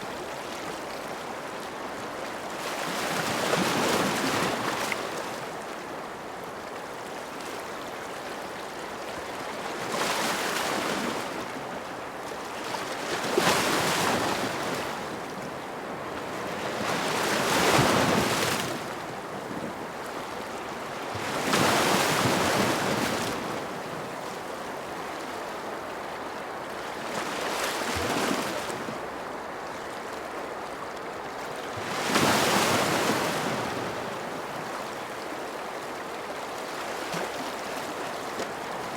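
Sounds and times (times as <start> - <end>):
ocean waves breaking on shore: 8.9 - 38.9.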